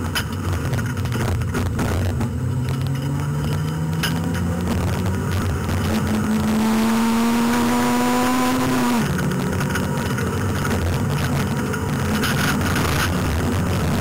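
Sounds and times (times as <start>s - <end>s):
road and cabin rumble: 0.0s - 14.0s
car engine revving hard: 2.8s - 9.3s.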